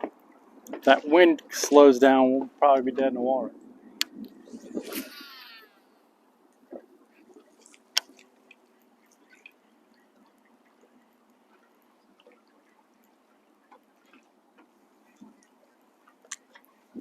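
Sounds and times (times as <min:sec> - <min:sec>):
faint drip-like taps: 0:00.0 - 0:01.6, 0:06.5 - 0:17.0
background hiss: 0:03.7 - 0:10.0.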